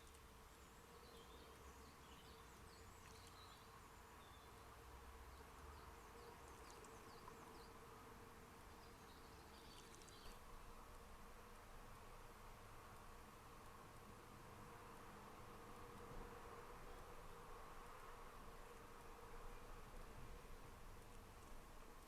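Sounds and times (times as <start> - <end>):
distant birds chirping: 8.8 - 10.5.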